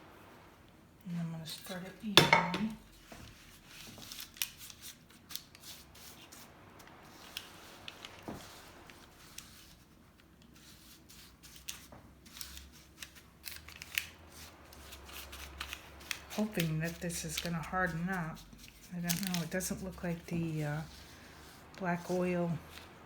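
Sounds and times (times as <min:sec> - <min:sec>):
utensil scraping thick mixture: 0:13.6 - 0:23.0.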